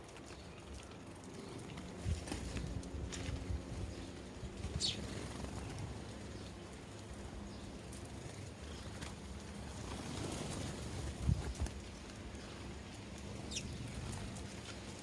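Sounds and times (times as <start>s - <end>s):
sparrow chirp: 3.8s - 9.9s, 10.6s - 15.0s.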